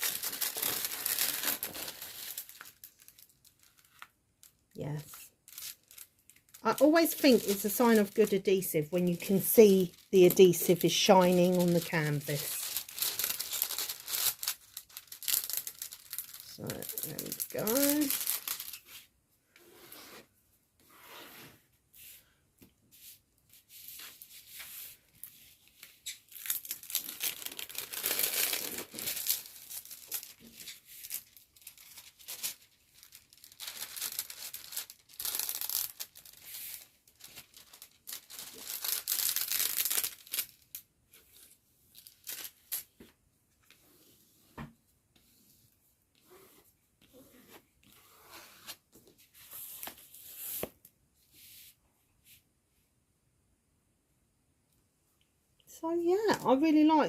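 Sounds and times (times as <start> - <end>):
plastic and paper packaging rustling: 0.0 - 19.1, 23.6 - 42.9.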